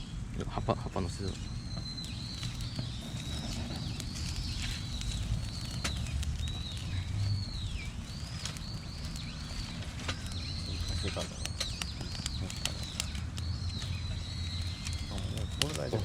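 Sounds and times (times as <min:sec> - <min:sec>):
campfire crackling: 0:00.3 - 0:16.0
sharp pops from fire: 0:01.3 - 0:16.0
rush of flame: 0:01.8 - 0:16.0.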